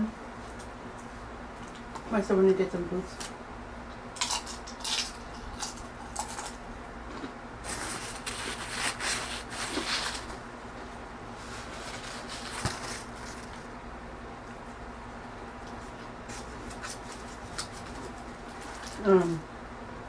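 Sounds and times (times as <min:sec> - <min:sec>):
tortilla chip crunching: 0:04.2 - 0:10.4, 0:15.6 - 0:19.0.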